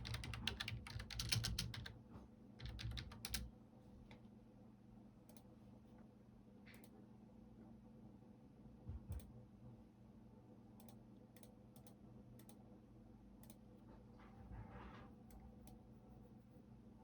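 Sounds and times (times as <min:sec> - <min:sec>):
keyboard typing: 0:00.0 - 0:02.0, 0:02.6 - 0:03.5.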